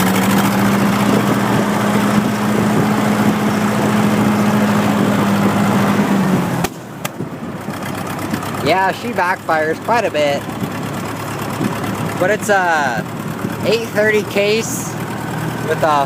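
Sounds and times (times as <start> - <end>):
tractor engine running: 0.0 - 16.0
wind on microphone: 0.7 - 6.6
engine backfiring pops: 6.6 - 8.4.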